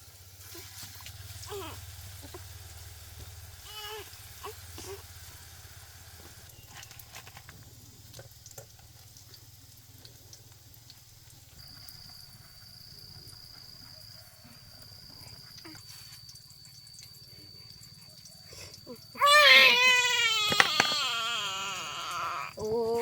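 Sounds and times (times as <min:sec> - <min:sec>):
food frying in hot oil: 0:00.0 - 0:15.0.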